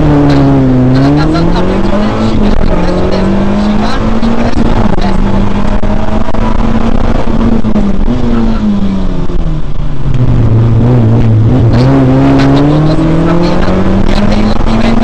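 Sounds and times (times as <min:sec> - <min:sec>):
car engine from inside cabin: 0:00.0 - 0:15.0.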